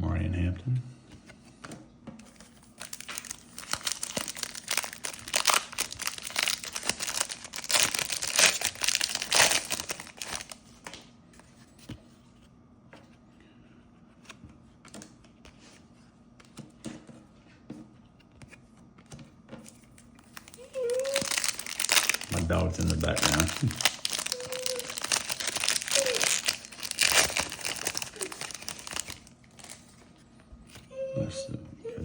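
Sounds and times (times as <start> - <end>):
foil wrapper tearing and crinkling: 2.3 - 10.6, 20.1 - 30.0.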